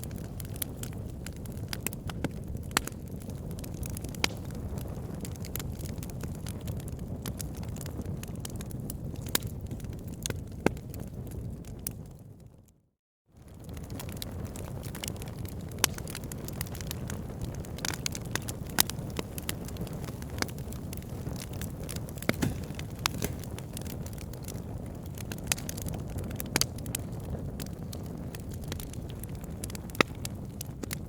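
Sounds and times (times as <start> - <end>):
low rumble of flame: 0.0 - 12.7, 13.4 - 31.0
wood logs crackling: 13.8 - 31.0.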